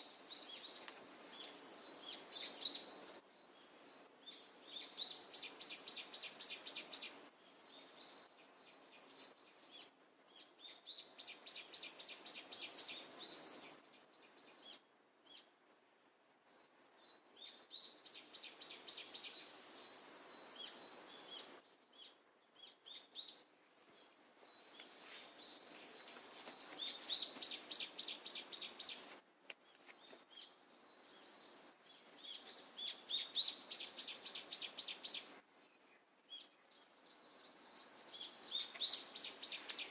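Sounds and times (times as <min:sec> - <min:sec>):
soft bird chirps: 0:00.0 - 0:39.9
songbird trilling: 0:26.8 - 0:29.0, 0:32.8 - 0:35.3, 0:38.5 - 0:39.9.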